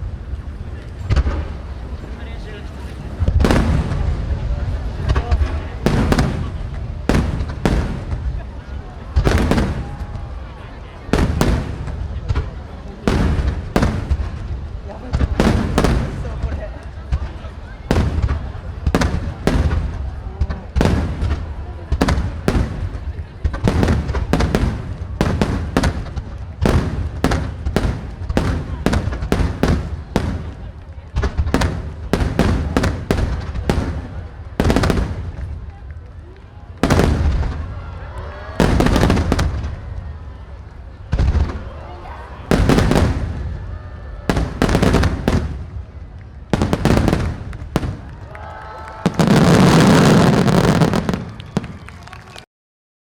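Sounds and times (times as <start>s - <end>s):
fireworks booming: 0.0s - 51.9s.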